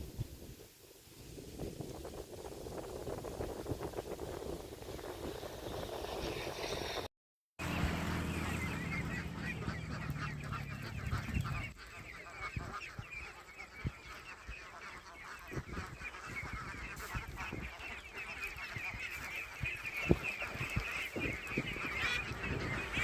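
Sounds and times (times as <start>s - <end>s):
low engine hum: 7.6s - 11.8s
waterfowl flock calling: 7.6s - 23.0s.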